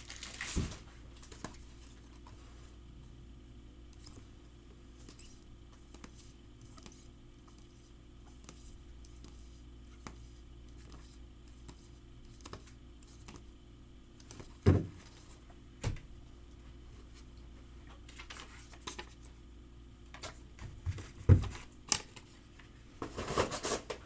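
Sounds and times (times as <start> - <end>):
trading cards being handled: 4.9 - 13.6.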